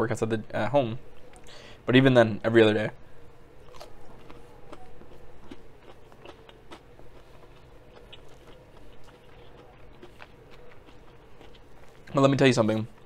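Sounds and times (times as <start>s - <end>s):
person chewing crispy food: 3.6s - 13.0s.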